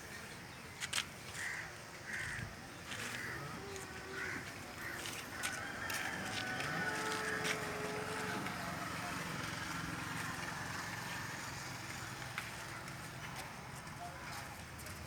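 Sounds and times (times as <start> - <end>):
steady engine hum: 4.4 - 15.0.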